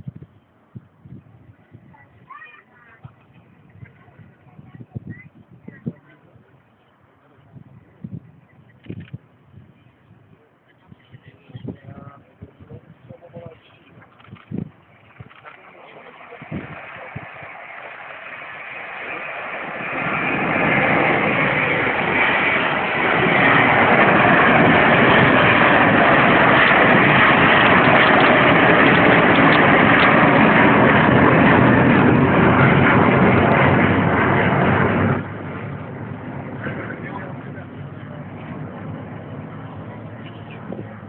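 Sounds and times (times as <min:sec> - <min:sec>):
jet engines roaring: 0:12.2 - 0:41.0.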